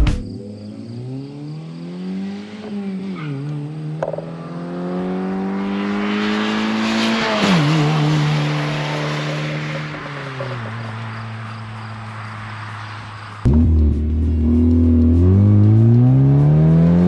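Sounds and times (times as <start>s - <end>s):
car exhaust revving: 13.4s - 17.0s.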